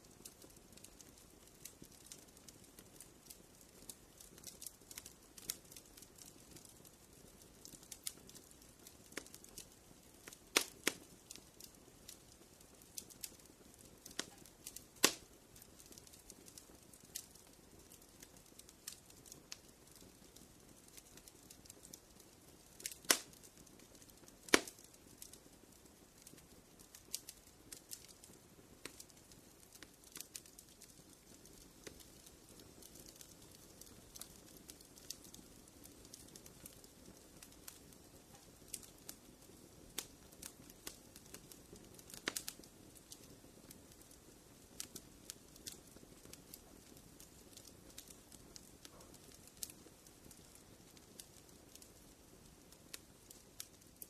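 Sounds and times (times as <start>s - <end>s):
fire crackling: 0.0s - 54.0s
fire popping: 0.0s - 54.0s.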